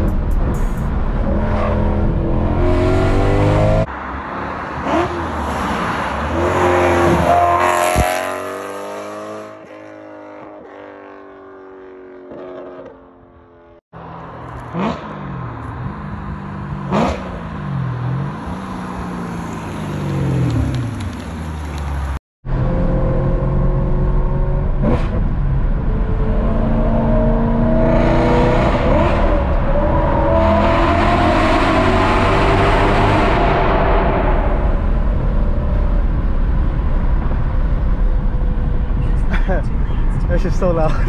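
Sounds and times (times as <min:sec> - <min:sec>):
car engine revving and accelerating: 0:00.0 - 0:03.9, 0:04.7 - 0:13.0, 0:14.5 - 0:21.2, 0:22.5 - 0:40.7.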